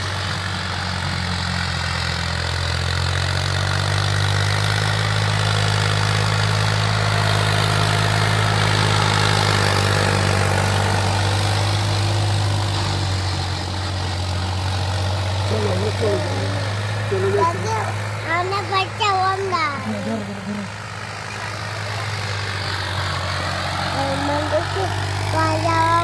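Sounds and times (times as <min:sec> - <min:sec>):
tractor engine humming: 0:00.0 - 0:26.0.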